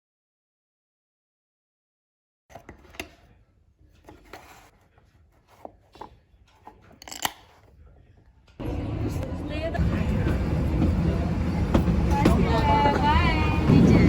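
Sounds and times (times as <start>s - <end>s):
loud steady rumbling: 8.6s - 14.0s.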